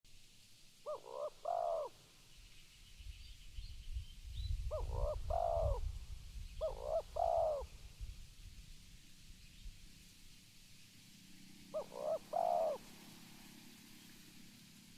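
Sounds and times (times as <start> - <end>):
dove cooing: 0.8 - 2.0, 4.7 - 5.9, 6.6 - 7.8, 11.7 - 13.7.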